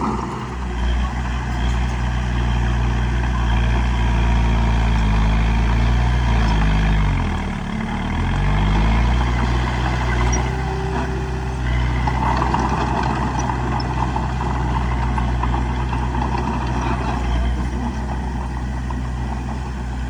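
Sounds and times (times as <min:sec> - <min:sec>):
rough rattling clatter: 0:00.0 - 0:01.0, 0:08.0 - 0:20.0
bulldozer diesel engine running: 0:00.0 - 0:20.0.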